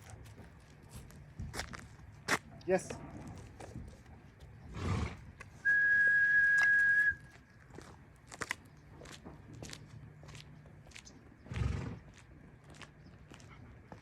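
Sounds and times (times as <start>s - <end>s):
dog whistle long tone: 5.6s - 7.3s.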